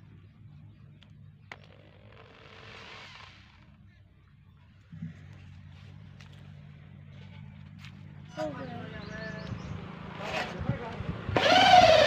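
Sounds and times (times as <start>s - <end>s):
electric drill motor humming: 11.4s - 12.0s.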